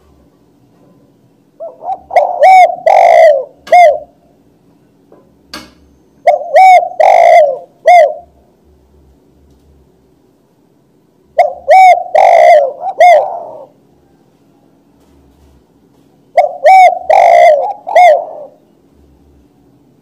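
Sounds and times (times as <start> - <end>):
dove cooing: 1.6 - 4.3, 6.2 - 8.5, 11.3 - 14.7, 16.3 - 18.7.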